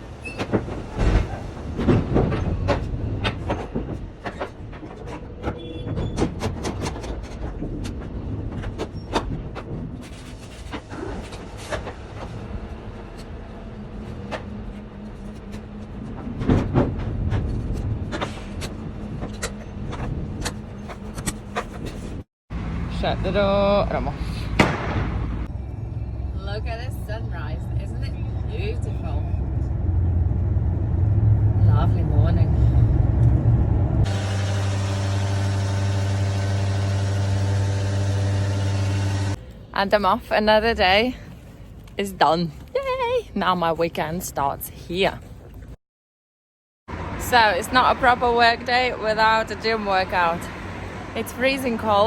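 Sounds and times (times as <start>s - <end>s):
lorry engine rumbling: 0.0s - 45.7s, 46.9s - 52.0s
vehicle engine idling: 25.3s - 39.6s.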